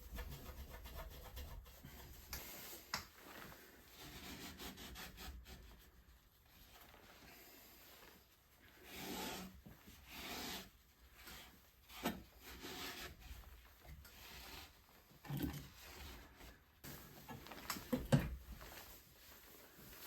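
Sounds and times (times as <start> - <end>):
scraping on wood: 8.8 - 13.5.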